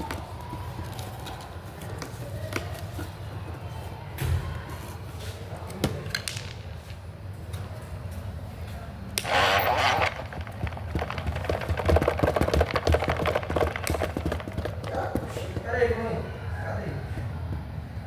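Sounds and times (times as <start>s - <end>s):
small motor humming: 9.2s - 10.9s
basket rattling and knocking: 9.2s - 16.0s.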